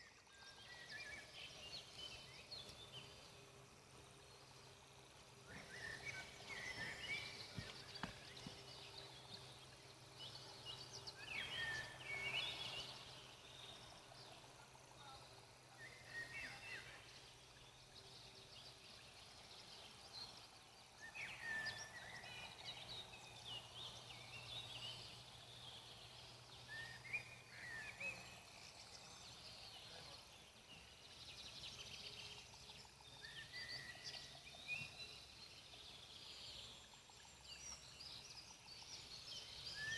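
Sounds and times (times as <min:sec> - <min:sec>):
birds chirping: 0:01.5 - 0:14.4.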